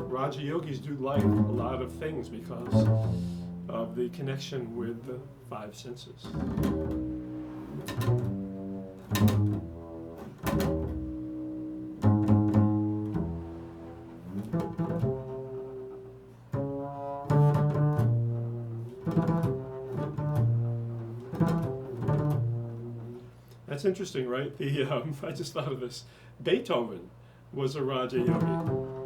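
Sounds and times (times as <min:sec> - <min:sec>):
plucked string instrument: 0:00.0 - 0:05.1, 0:06.2 - 0:23.3, 0:28.2 - 0:29.0.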